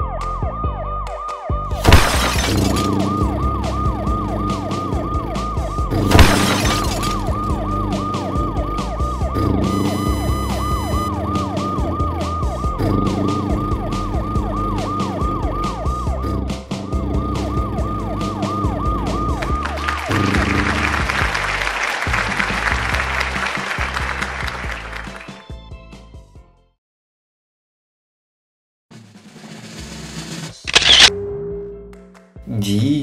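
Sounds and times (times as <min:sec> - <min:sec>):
cartoon siren wailing: 0:02.7 - 0:21.3
backing music loop: 0:02.9 - 0:24.9
crash-like bursts: 0:06.0 - 0:07.3.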